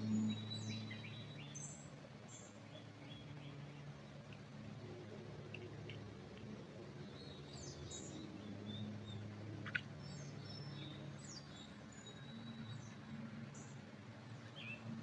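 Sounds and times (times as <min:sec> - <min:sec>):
low forest hum: 0:00.0 - 0:15.0
small birds chirping: 0:07.0 - 0:15.0.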